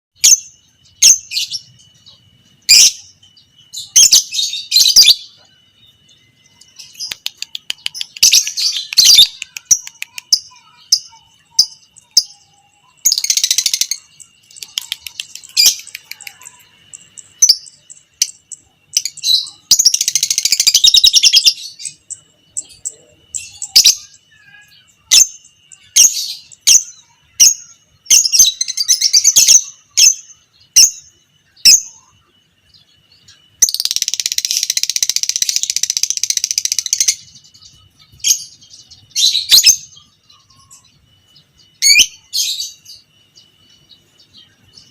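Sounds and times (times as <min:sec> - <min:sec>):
lovebird chirps: 0:00.2 - 0:44.9
lovebird chattering trills: 0:06.5 - 0:32.2, 0:33.6 - 0:41.0.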